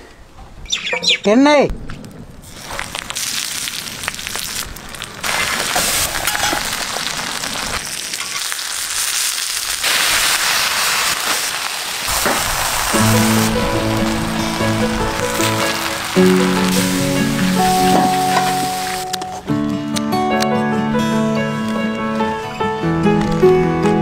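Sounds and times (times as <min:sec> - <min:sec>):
fish parcel sizzling and crackling: 0:02.4 - 0:19.2.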